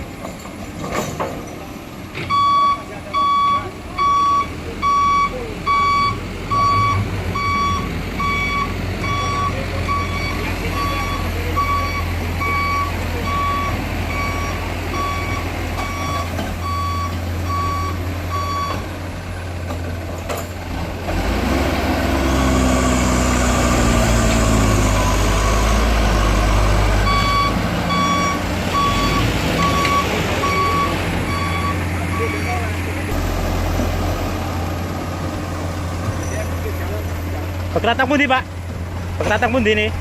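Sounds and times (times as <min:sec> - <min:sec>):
diesel engine running: 0:00.0 - 0:40.0
reversing alarm beeping: 0:02.3 - 0:18.8, 0:24.7 - 0:32.7.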